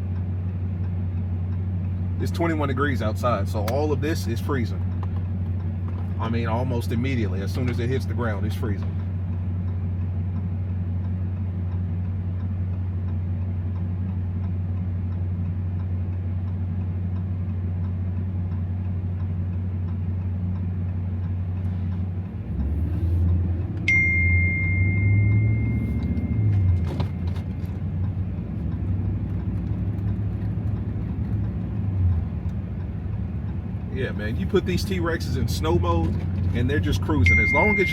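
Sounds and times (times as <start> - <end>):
truck engine droning: 0.0 - 37.9
high tone: 23.8 - 27.3, 37.2 - 37.9.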